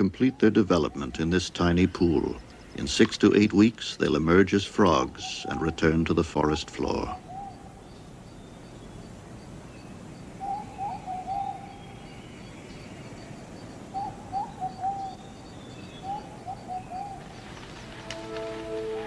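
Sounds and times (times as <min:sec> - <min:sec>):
faint high ticking: 0:00.0 - 0:07.2.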